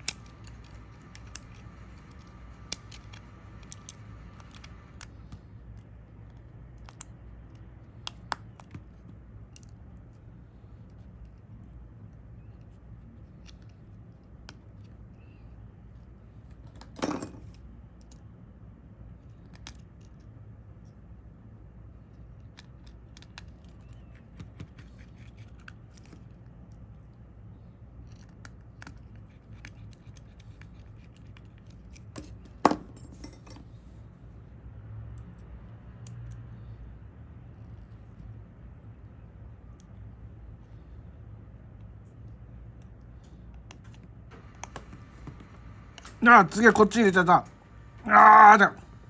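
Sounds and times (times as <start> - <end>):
tools clicking on smartphone parts: 0.0 - 10.2, 22.4 - 26.4, 28.0 - 33.7, 35.1 - 36.6, 39.6 - 40.7
steady low hum: 36.4 - 49.0.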